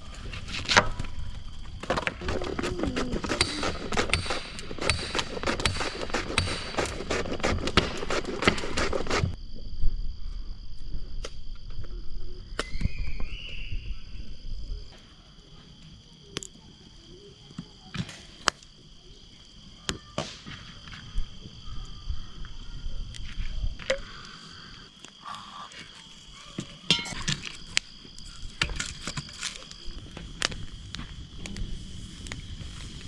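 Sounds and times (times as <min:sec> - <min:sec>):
crickets trilling: 0:00.0 - 0:33.0.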